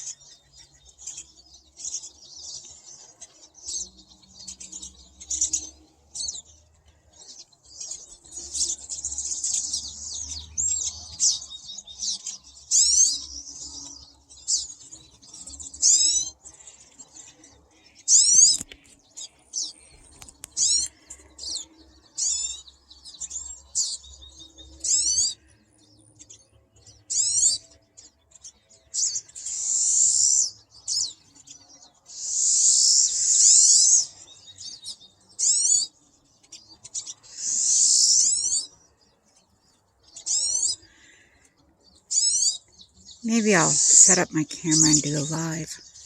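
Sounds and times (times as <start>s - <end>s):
buzzy bird calls: 0.0s - 25.5s, 26.9s - 46.0s
high sweeping bird chirps: 37.0s - 38.8s, 42.1s - 46.0s.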